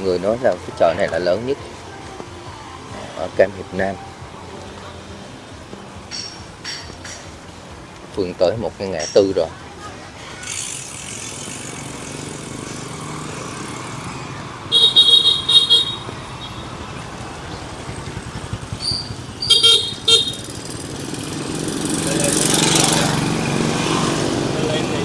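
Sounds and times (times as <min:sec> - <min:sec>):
passing engines hum: 0:00.0 - 0:25.0
vehicle horns tooting: 0:14.6 - 0:16.9, 0:18.8 - 0:20.8.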